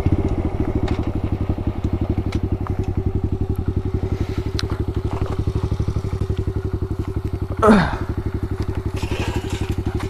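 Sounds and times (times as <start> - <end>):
motorbike engine idling: 0.0 - 10.0
sharp clicks and clatter: 8.5 - 10.0.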